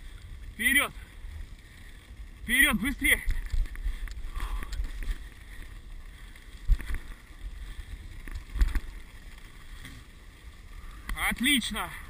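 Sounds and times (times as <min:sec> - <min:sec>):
sled runners on snow: 0:00.0 - 0:12.0.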